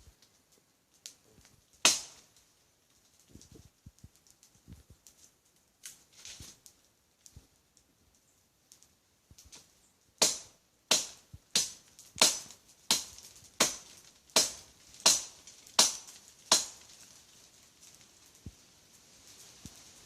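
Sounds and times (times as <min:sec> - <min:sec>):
machete chopping tree trunk: 0:01.8 - 0:02.2, 0:10.2 - 0:16.9.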